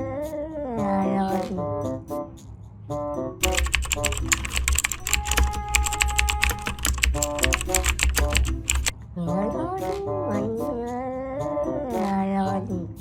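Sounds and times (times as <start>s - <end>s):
computer keyboard typing: 3.4s - 8.9s
background music: 3.4s - 10.8s.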